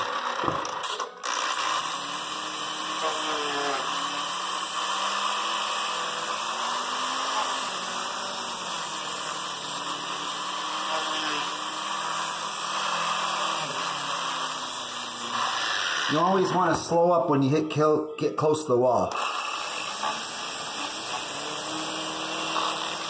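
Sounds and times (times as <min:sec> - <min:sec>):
die grinder whine: 0:00.0 - 0:17.4, 0:19.0 - 0:23.0.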